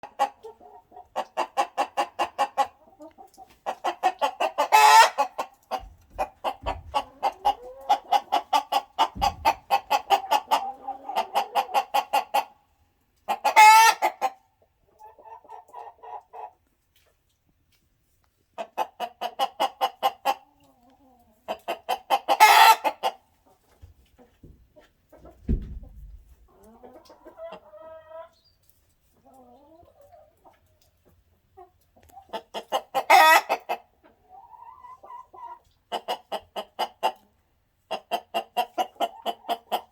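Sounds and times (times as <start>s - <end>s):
chicken clucking: 0.0s - 39.9s
chicken squawking: 0.1s - 12.6s, 13.3s - 14.3s, 21.5s - 23.2s, 32.3s - 37.2s.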